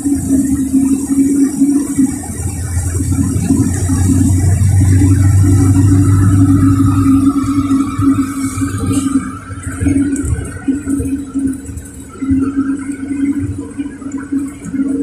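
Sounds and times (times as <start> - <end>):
rising whine: 0.0 - 14.9
bus diesel engine running: 1.8 - 12.1.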